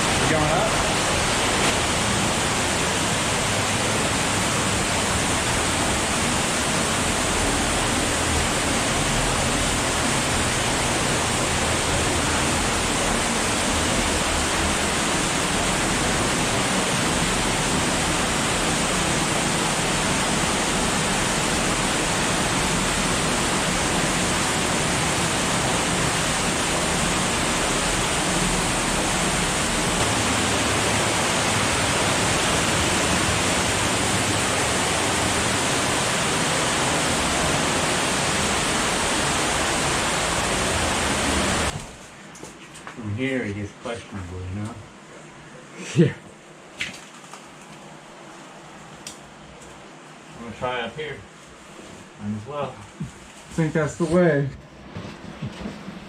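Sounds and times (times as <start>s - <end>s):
cave stream rushing: 0.0s - 42.4s.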